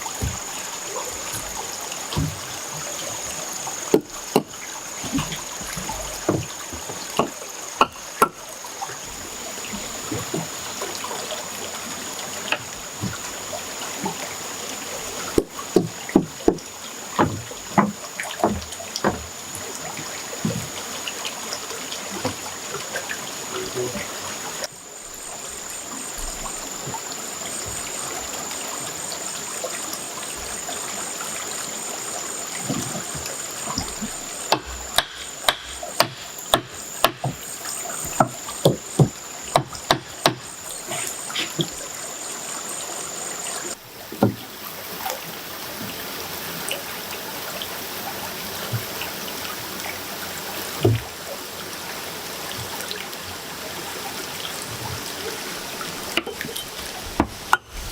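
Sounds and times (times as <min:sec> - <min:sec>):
water trickling: 0:00.0 - 0:57.9
sharp knocks: 0:00.2 - 0:00.5, 0:03.9 - 0:08.4, 0:15.4 - 0:19.3, 0:32.7 - 0:40.5.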